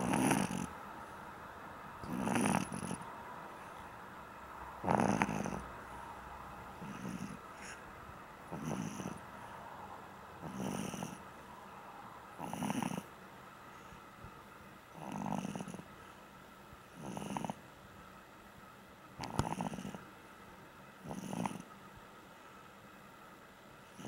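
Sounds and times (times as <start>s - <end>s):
dog snoring: 0.0s - 0.8s, 2.0s - 3.1s, 4.8s - 5.7s, 6.7s - 7.8s, 8.5s - 9.3s, 10.4s - 11.2s, 12.4s - 13.1s, 14.9s - 15.9s, 16.9s - 17.6s, 19.2s - 20.1s, 21.0s - 21.7s.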